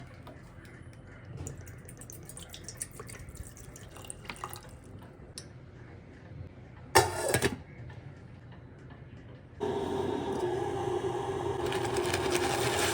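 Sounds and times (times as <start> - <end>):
water dripping and trickling: 1.3 - 5.1.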